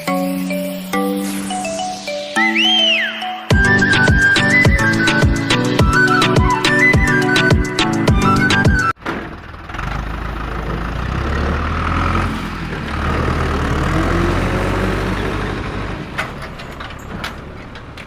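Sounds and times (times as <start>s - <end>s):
engine rumbling: 3.5s - 18.0s.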